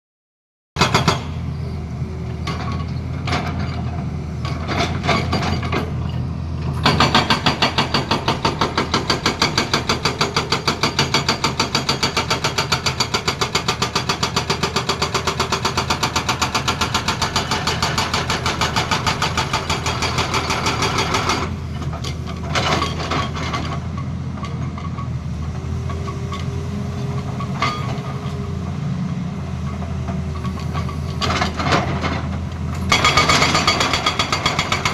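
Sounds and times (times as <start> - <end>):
diesel engine running: 1.2 - 34.9
hydraulic breaker hammering: 6.8 - 21.6, 32.8 - 34.9.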